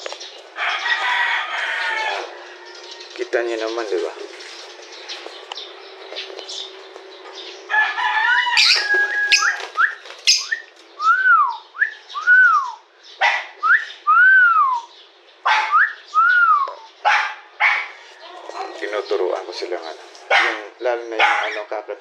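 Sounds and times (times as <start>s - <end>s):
birds chirping sharply: 0.0s - 22.0s
birds whistling: 1.7s - 18.2s.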